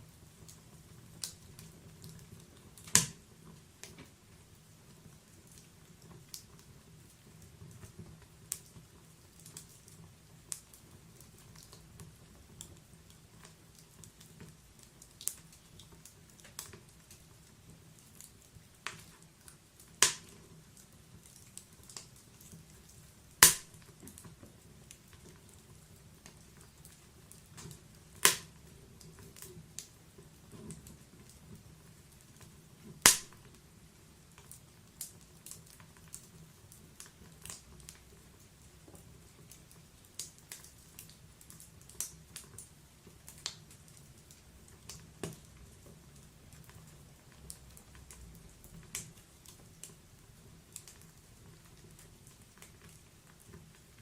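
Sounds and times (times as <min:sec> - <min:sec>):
wood fire crackling: 0:00.0 - 0:54.0
logs popping: 0:02.8 - 0:03.2, 0:20.0 - 0:20.3, 0:23.4 - 0:23.9, 0:28.2 - 0:28.6, 0:33.0 - 0:33.5.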